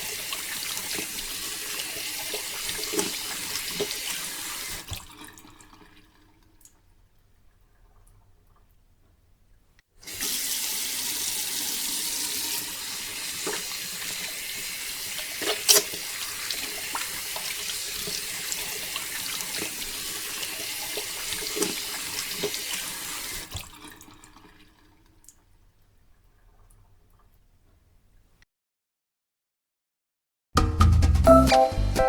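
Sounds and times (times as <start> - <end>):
water gushing: 0.0 - 8.8, 10.0 - 25.3.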